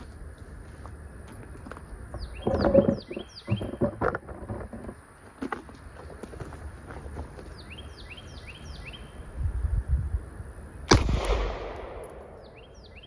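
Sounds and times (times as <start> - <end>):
bird chirping: 2.2 - 4.0, 7.4 - 9.3, 12.0 - 13.0
pistol shot with echo: 10.9 - 13.0.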